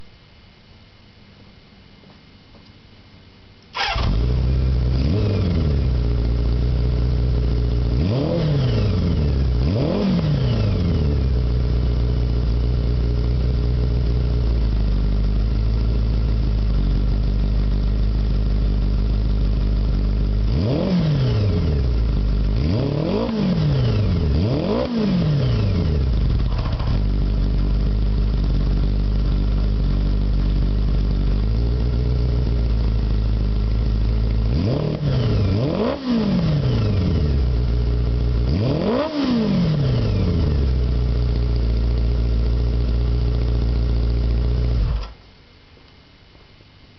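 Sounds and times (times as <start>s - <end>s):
motorcycle engine idling: 3.8s - 9.7s, 10.7s - 20.8s, 21.5s - 35.6s, 36.8s - 38.6s, 39.8s - 45.0s
engine revving throttle blips: 7.8s - 11.6s, 20.4s - 27.1s, 34.2s - 41.1s.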